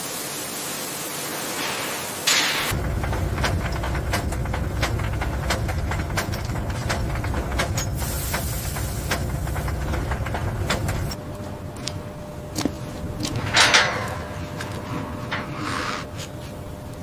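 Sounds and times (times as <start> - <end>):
sharp clicks and clanks: 2.3 - 11.2, 13.2 - 15.6
low mechanical rumble: 2.7 - 17.0.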